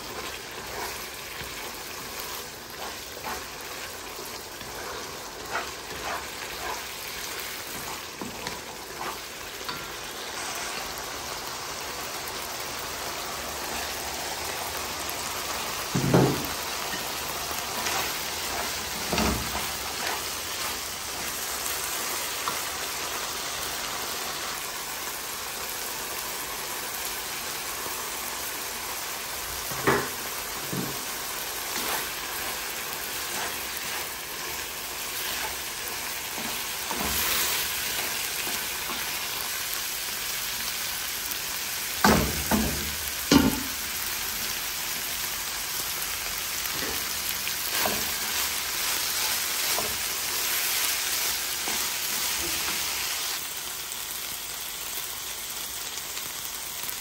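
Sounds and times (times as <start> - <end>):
meat sizzling in frying pan: 0.0 - 57.0
wooden spatula knocking on pan: 15.9 - 16.6.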